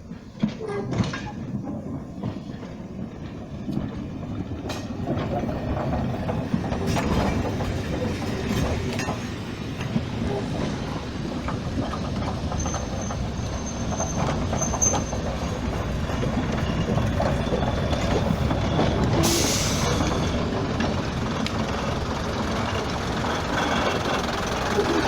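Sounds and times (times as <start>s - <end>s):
train rumbling on rails: 0.0s - 25.0s
faint high squeal: 12.5s - 20.5s.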